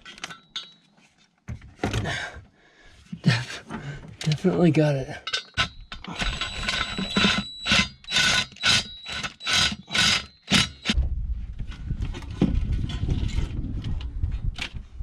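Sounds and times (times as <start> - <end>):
low rumbling handling noise: 10.9 - 15.0.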